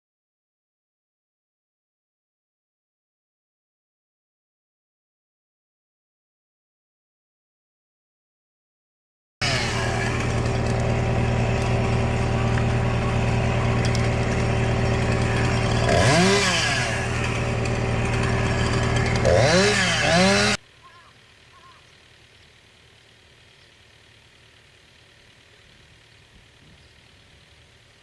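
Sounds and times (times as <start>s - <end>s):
chainsaw engine revving: 9.4s - 20.7s.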